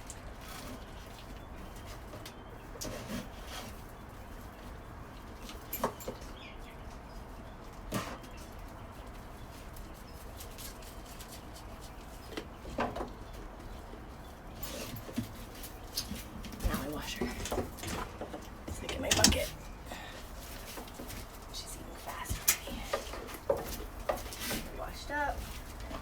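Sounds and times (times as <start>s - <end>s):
knocks and clinks at milking stand: 5.6s - 6.4s, 14.6s - 19.9s.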